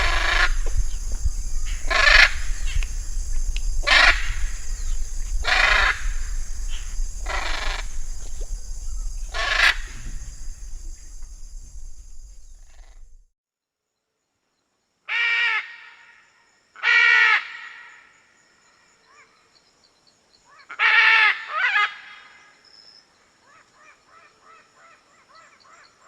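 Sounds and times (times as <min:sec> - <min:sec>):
bird harsh call: 0:00.0 - 0:02.9, 0:03.8 - 0:08.0, 0:08.9 - 0:10.6.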